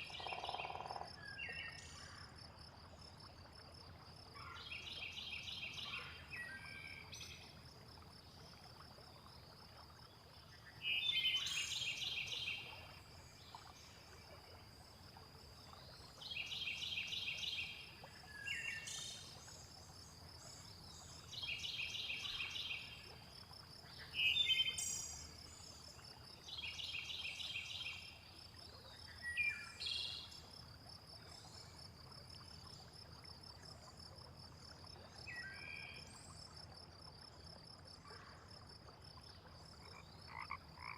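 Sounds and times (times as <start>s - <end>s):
insects chirring: 0.0s - 1.1s.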